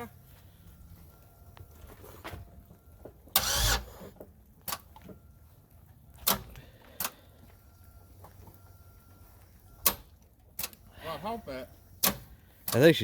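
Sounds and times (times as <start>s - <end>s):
engine starter burst: 3.4s - 4.1s.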